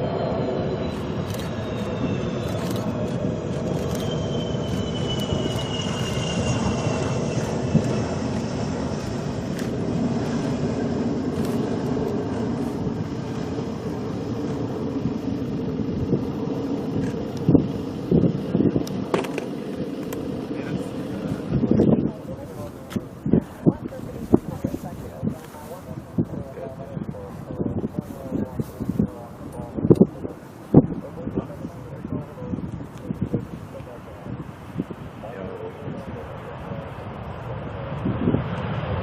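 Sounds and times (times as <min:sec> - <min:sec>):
jet engines rumbling with whine: 0:00.0 - 0:39.0.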